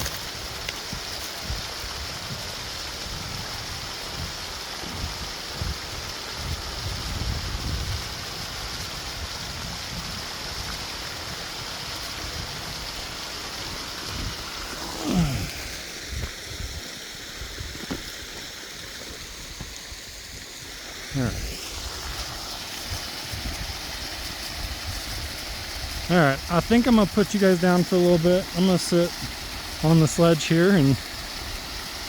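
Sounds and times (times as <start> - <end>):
running water rushing: 0.0 - 32.0
wind gusts on microphone: 0.9 - 11.4, 21.2 - 26.5.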